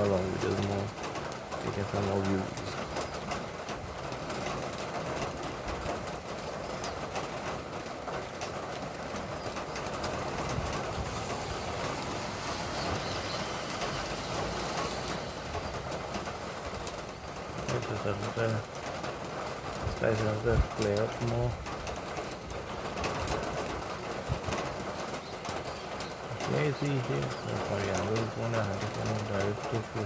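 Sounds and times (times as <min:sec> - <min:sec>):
rain falling: 0:00.0 - 0:30.0
drips ticking: 0:25.0 - 0:30.0.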